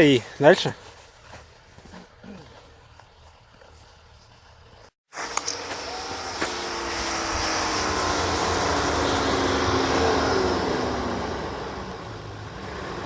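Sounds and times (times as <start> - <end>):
car engine revving hard: 5.4 - 13.0.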